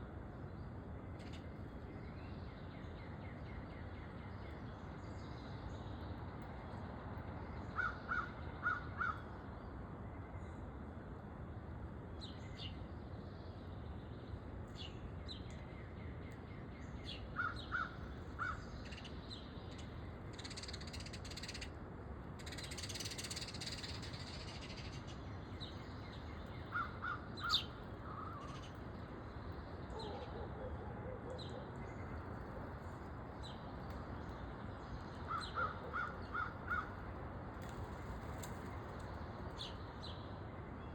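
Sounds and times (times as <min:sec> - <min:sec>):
songbirds chirping: 0:00.0 - 0:40.9
crow cawing: 0:07.8 - 0:09.2, 0:35.3 - 0:37.0.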